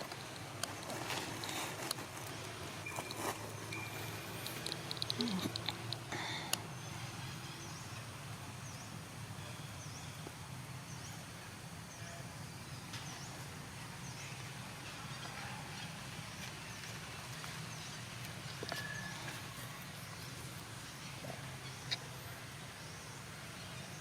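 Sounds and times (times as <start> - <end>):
faint high chirp: 2.8 - 4.5.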